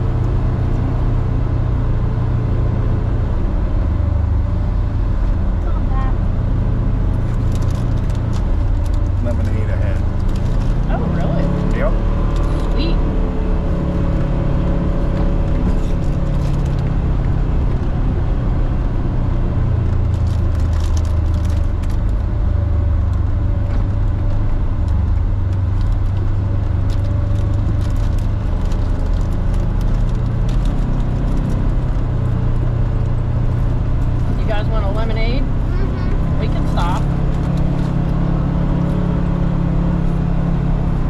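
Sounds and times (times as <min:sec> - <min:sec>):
off-road vehicle engine drone: 0:00.0 - 0:41.0
rattles and clicks: 0:15.1 - 0:17.0.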